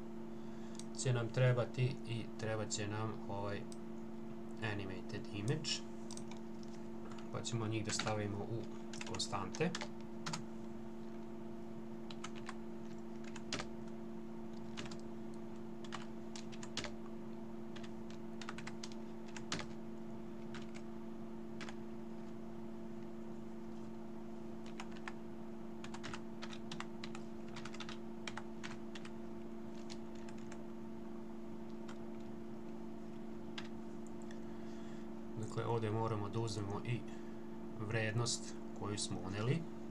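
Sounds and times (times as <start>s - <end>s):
steady low hum: 0.0s - 39.9s
typing on computer keyboard: 12.1s - 13.7s, 14.6s - 15.0s, 15.8s - 17.0s, 17.7s - 19.8s, 20.5s - 20.8s, 24.7s - 25.2s, 25.8s - 29.1s, 29.7s - 30.6s.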